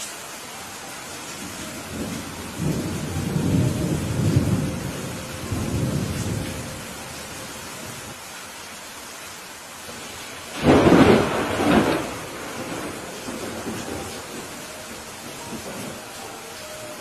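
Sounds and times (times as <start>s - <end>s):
steady rain: 0.0s - 17.0s
rolling thunder: 1.4s - 7.0s, 10.0s - 16.1s.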